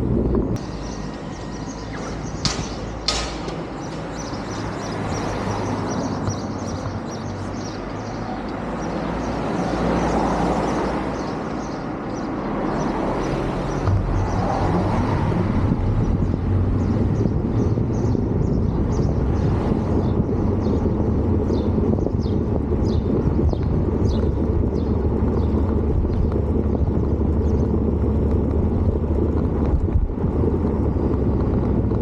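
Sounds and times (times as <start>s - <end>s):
road noise: 0.0s - 32.0s
vehicle engine running: 11.2s - 32.0s.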